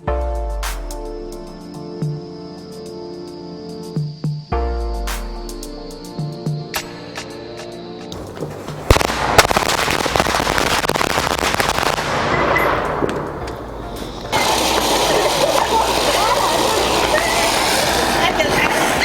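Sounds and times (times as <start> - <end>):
firecrackers popping: 8.1 - 19.0
steady hiss: 8.2 - 19.0.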